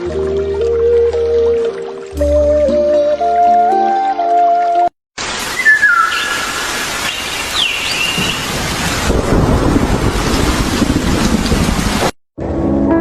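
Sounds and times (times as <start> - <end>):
rain-like hiss: 5.2 - 12.1
whistled bird calls: 5.5 - 8.5.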